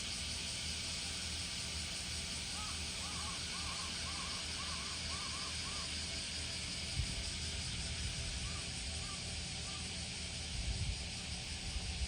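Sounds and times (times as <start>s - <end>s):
outdoor hiss and rumble: 0.0s - 12.0s
bird calling: 2.6s - 6.0s.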